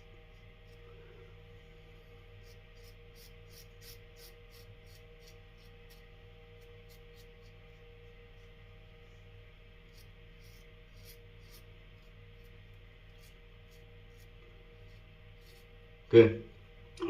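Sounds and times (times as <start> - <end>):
steady low hum: 0.0 - 17.0
razor scraping stubble: 2.4 - 8.6, 9.8 - 15.8.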